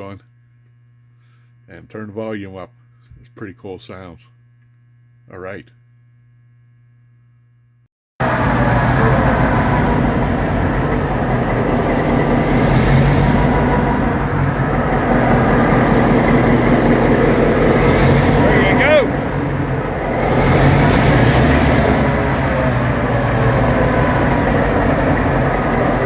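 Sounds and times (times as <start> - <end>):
faint hum: 0.0 - 26.0
diesel locomotive engine running: 8.2 - 26.0.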